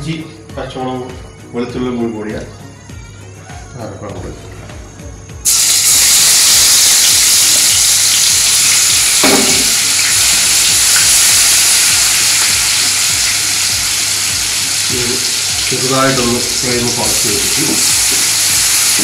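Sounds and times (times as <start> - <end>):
paste sizzling in hot oil: 5.4 - 19.0.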